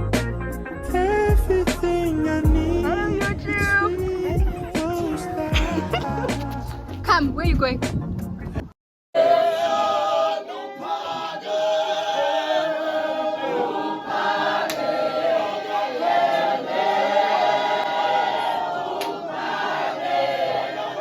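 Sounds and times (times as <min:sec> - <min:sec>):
choir singing: 0:09.2 - 0:21.0.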